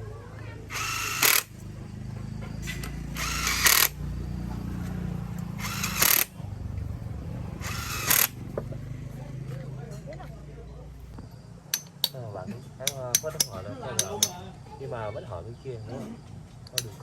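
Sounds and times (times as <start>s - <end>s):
power tool bursts: 0.7s - 1.6s, 2.6s - 4.0s, 5.5s - 6.3s, 7.6s - 8.4s.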